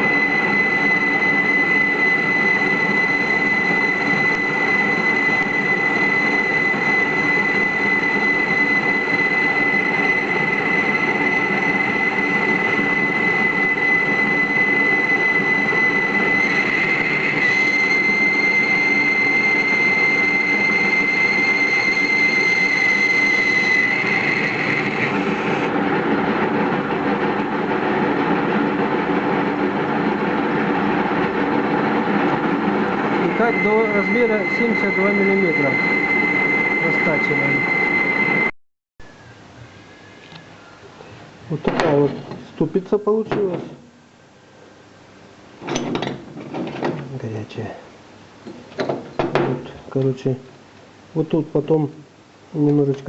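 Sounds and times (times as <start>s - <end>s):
cutting tool squealing: 0.0s - 25.7s, 33.1s - 38.5s
lathe running: 0.0s - 38.5s.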